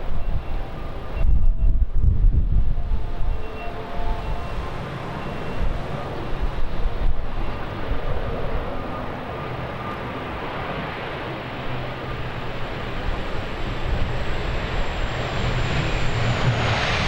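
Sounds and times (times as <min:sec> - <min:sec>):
wind buffeting the microphone: 0:00.0 - 0:10.8
turboprop airliner rumbling: 0:00.0 - 0:17.0.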